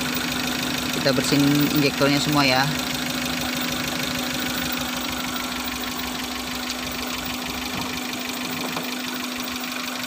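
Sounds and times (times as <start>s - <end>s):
engine idling roughly: 0.0s - 10.0s.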